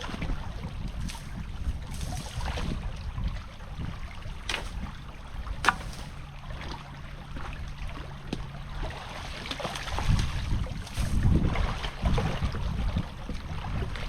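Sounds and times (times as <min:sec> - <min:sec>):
creek water running and splashing: 0:00.7 - 0:13.0
sharp knocks: 0:05.6 - 0:06.1.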